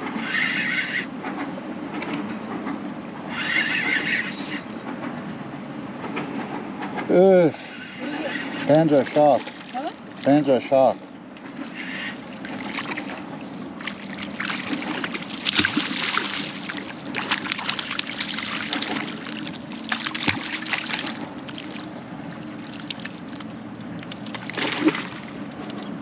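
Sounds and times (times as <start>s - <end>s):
water splashing and sloshing: 0.0s - 26.0s
low steady hum: 7.4s - 26.0s.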